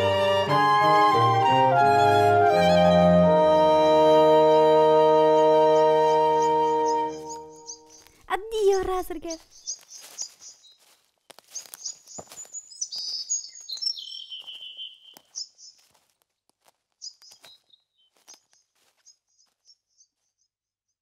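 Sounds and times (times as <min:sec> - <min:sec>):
small birds chirping: 0:05.3 - 0:20.6.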